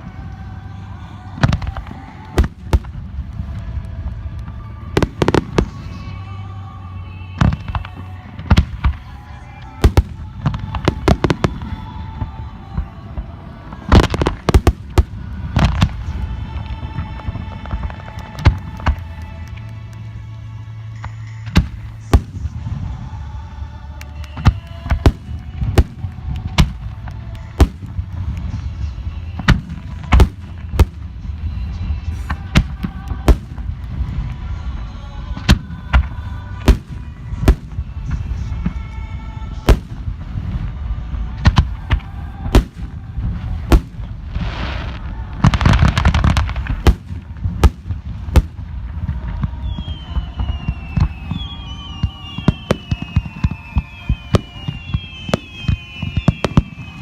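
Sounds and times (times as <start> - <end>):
fireworks crackling: 0.0 - 57.0
fireworks bangs: 1.4 - 6.3, 7.3 - 19.9, 21.5 - 57.0.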